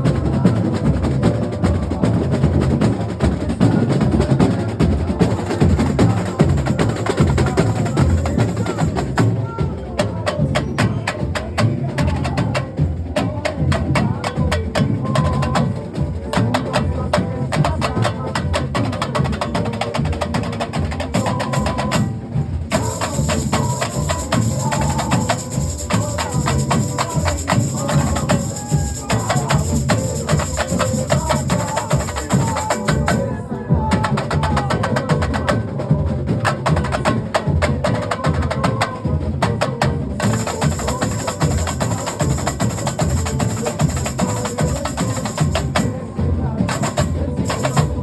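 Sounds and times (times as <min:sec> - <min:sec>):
sharp high drum strokes: 0:20.6 - 0:33.4, 0:40.2 - 0:48.0.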